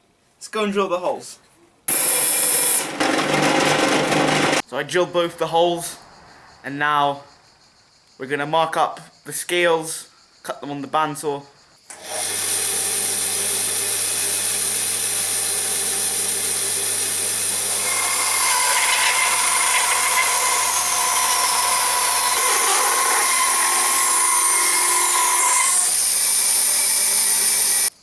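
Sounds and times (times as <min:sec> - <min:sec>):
bandsaw motor hum: 0:01.9 - 0:04.6, 0:11.9 - 0:27.9
saw blade whining: 0:01.9 - 0:04.6, 0:11.9 - 0:27.9.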